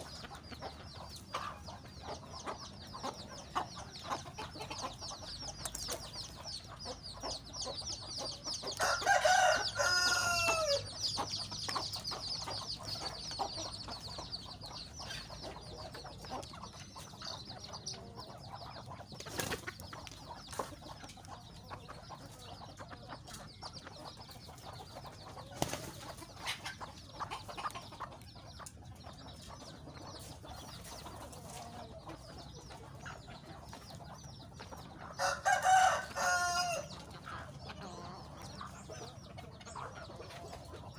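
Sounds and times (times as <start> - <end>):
chickens clucking: 0.0 - 40.9
rooster crowing: 8.8 - 10.9, 35.2 - 36.9.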